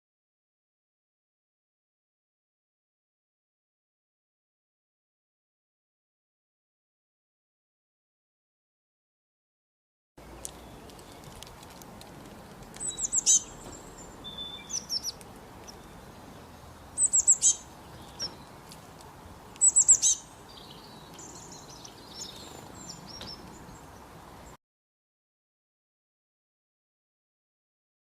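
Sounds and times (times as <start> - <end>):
small birds calling: 10.2 - 24.6
soft bird chirps: 12.7 - 18.8, 19.5 - 24.6.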